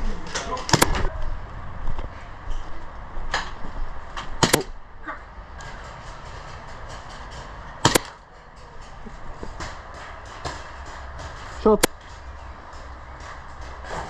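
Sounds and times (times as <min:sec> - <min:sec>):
airsoft gun cracks: 0:04.4 - 0:04.7, 0:07.8 - 0:08.2.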